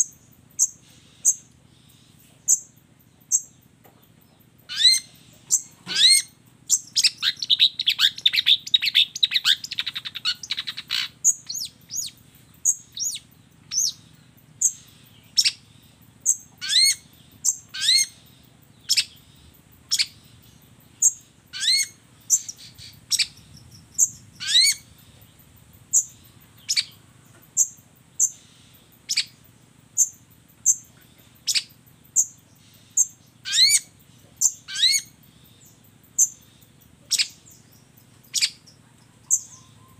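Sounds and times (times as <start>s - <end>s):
fast chattering bird trill: 4.7s - 14.0s, 16.2s - 18.2s, 33.0s - 35.2s
bird calls sweeping upward: 21.0s - 25.0s, 38.3s - 39.9s.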